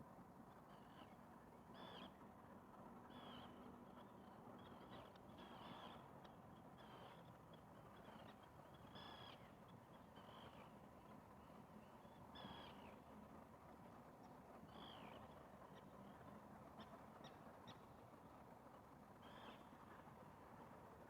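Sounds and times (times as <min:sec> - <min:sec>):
distant bird calls: 0:12.1 - 0:13.0.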